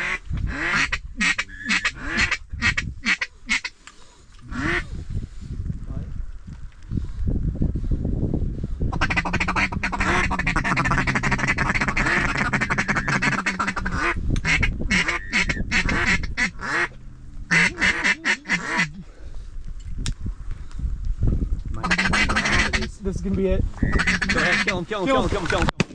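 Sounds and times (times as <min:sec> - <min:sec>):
duck call feeding chatter: 0:00.0 - 0:03.7, 0:04.5 - 0:04.8, 0:08.9 - 0:16.9, 0:17.5 - 0:19.0, 0:21.8 - 0:22.9, 0:23.8 - 0:24.9
duck call quacks: 0:00.0 - 0:03.7, 0:04.5 - 0:04.8, 0:08.9 - 0:16.9, 0:17.5 - 0:19.0, 0:21.8 - 0:22.9, 0:23.8 - 0:24.8.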